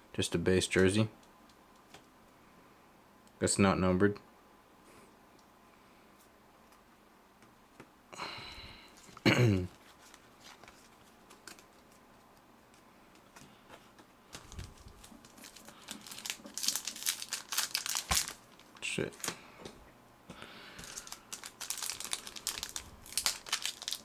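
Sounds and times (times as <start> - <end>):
foil wrapper crinkling: 9.0 - 12.0, 14.3 - 19.4, 20.8 - 24.0.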